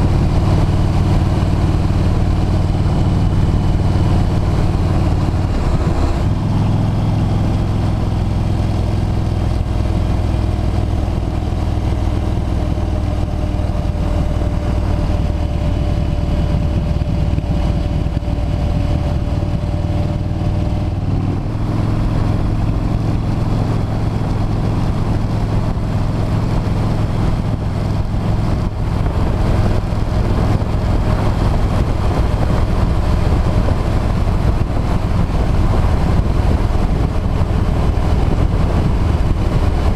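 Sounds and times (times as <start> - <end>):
motorcycle engine cruising: 0.0 - 39.9
road noise: 0.0 - 39.9
wind noise: 0.0 - 39.9.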